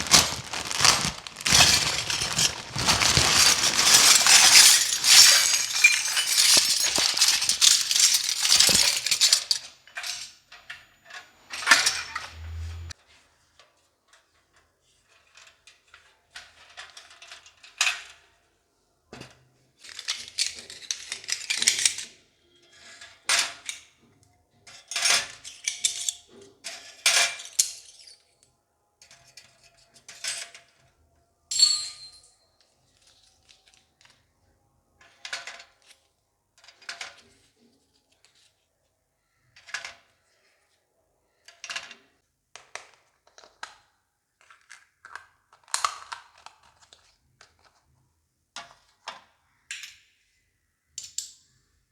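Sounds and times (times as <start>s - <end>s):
packaging rustle: 0.0s - 9.6s
toy pieces clicking and clattering: 0.0s - 9.6s
ringing clink: 31.5s - 32.4s.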